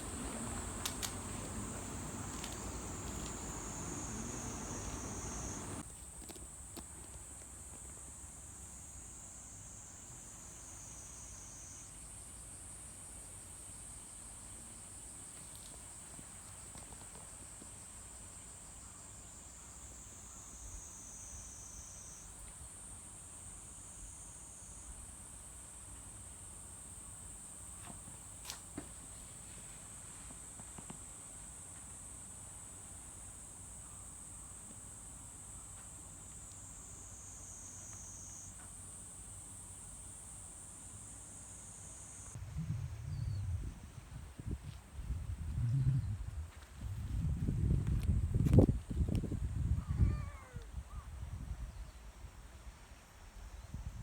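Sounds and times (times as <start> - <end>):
insects chorus: 0.0 - 54.0
faint clicks: 0.1 - 6.4.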